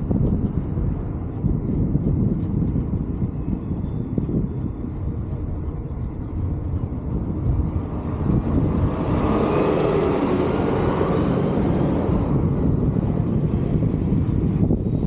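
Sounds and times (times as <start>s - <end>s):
wind rumble on microphone: 0.0s - 15.0s
car passing: 7.2s - 14.4s.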